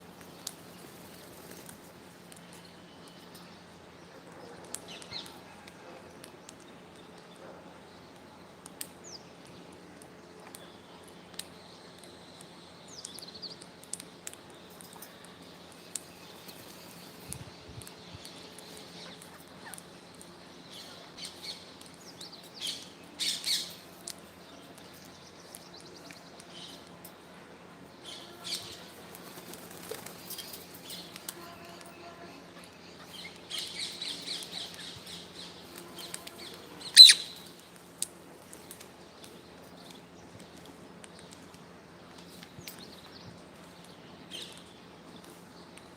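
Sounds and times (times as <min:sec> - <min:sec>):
low background hiss: 0:00.0 - 0:45.9
low background hum: 0:00.0 - 0:45.9
faint high bird chirps: 0:30.3 - 0:37.5
parrot calling and squawking: 0:36.8 - 0:37.4.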